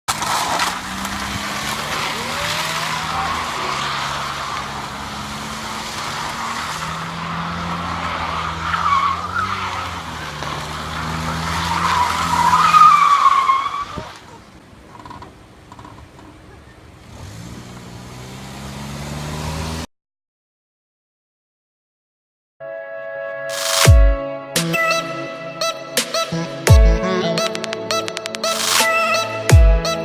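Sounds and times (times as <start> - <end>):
tyres squealing: 0.1 - 16.9.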